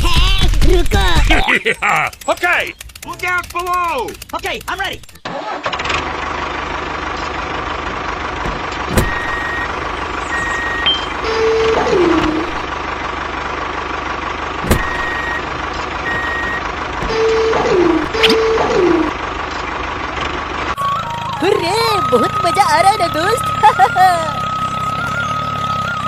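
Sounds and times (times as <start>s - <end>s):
mini tractor engine running: 0.0s - 26.0s
short high electronic beeps: 10.3s - 11.4s.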